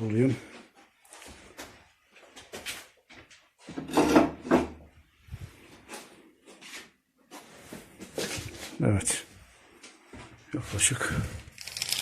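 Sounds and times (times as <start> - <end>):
wooden knocks and scrapes: 3.6 - 8.7.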